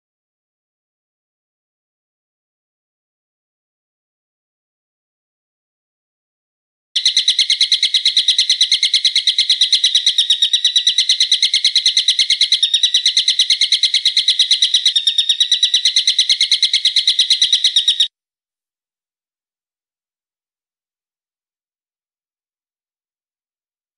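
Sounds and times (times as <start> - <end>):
bird calling sharp high notes: 7.0 - 18.1.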